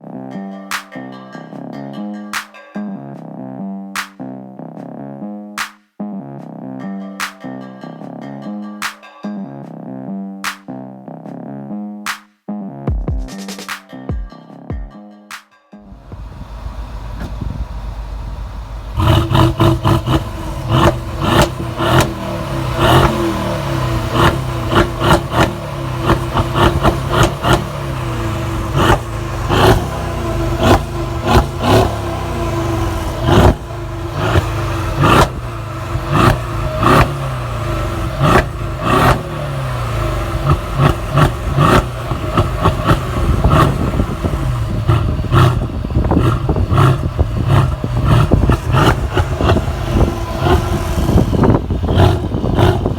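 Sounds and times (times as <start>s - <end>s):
car engine revving: 15.8s - 52.9s
exhaust cracks: 15.9s - 52.9s.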